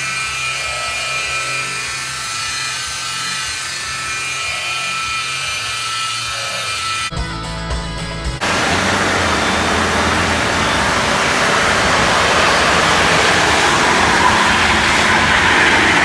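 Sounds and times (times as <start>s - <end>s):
loud rushing roar: 8.4s - 16.0s
truck engine running hard: 8.4s - 16.0s.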